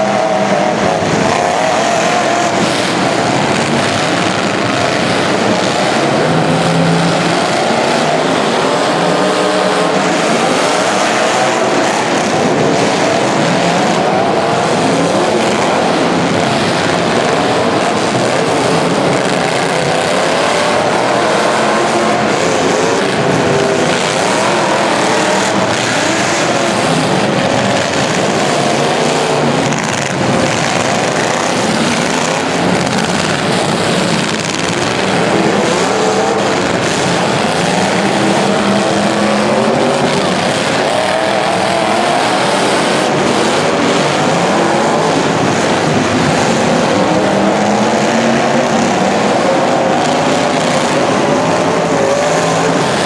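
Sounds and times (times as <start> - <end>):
racing engines revving: 0.0 - 53.0.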